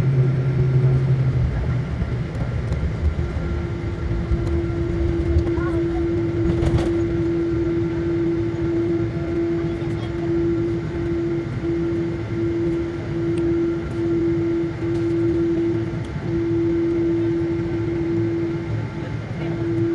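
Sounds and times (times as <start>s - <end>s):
jet airliner cabin rumble: 0.0s - 19.9s
pulsing hum: 0.0s - 19.9s.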